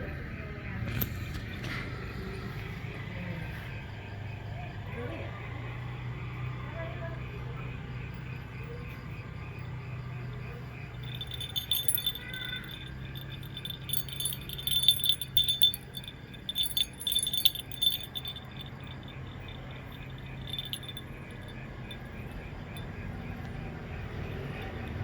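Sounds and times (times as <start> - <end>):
metallic jingling: 10.9 - 22.9
steady low hum: 11.0 - 22.8.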